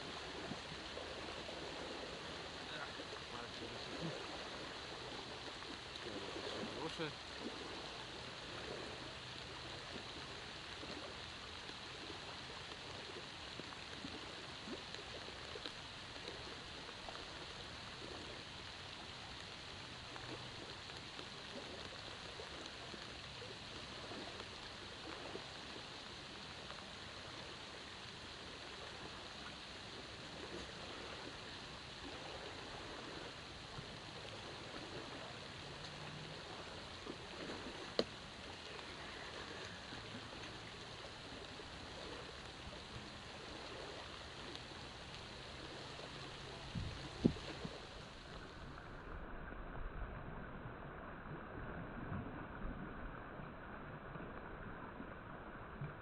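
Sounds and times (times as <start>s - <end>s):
light rain falling: 0.0s - 49.7s
raindrop ticks: 5.4s - 7.6s, 9.3s - 25.4s, 33.7s - 48.4s.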